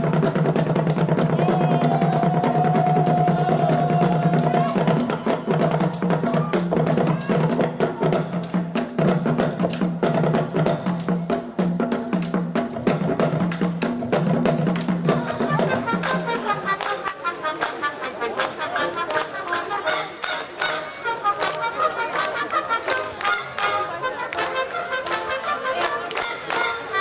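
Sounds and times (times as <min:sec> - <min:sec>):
drum strokes: 0:00.0 - 0:18.5
brass band playing: 0:15.1 - 0:27.0.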